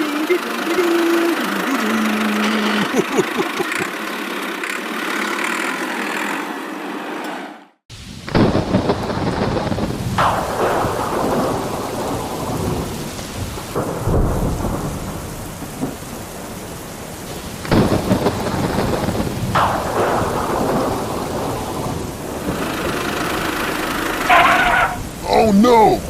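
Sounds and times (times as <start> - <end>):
steady rain: 0.0 - 6.6, 7.9 - 26.0
rumbling thunder claps: 7.9 - 25.3.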